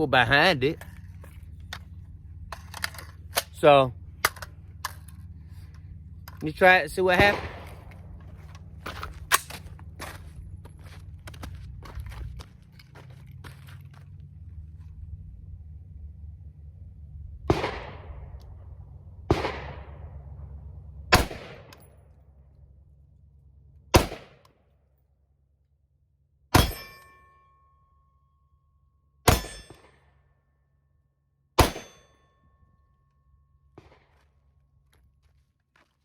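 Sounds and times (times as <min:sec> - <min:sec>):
pistol shots: 0:07.1 - 0:08.0, 0:17.5 - 0:18.4, 0:19.3 - 0:20.1, 0:21.1 - 0:21.8, 0:23.9 - 0:24.4, 0:26.6 - 0:27.0, 0:29.3 - 0:29.9, 0:31.6 - 0:32.1
metallic ring of steel target: 0:26.5 - 0:30.4, 0:31.6 - 0:33.8.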